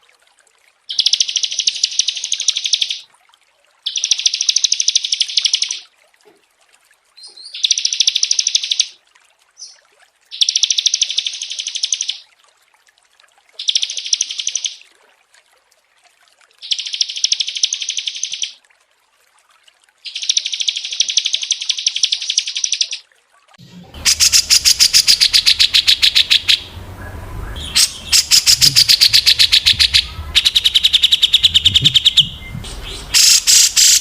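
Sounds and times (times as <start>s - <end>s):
songbird chattering trill: 0.9s - 3.0s, 24.0s - 34.0s.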